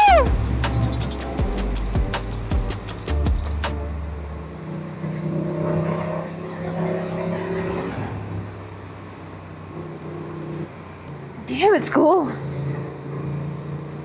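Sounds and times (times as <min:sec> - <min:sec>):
motorcycle engine running: 0:00.0 - 0:03.7
rushing noise: 0:00.0 - 0:04.5.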